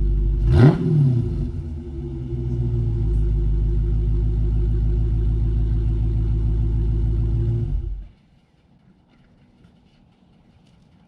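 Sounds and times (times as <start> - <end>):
car engine idling: 0.0 - 8.1.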